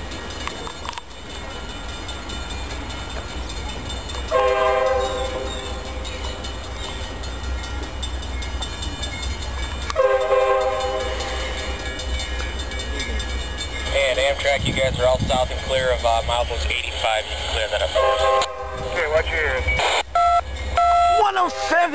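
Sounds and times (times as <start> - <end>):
locomotive air horn blasts: 4.3 - 5.5, 9.9 - 11.4, 18.0 - 18.9.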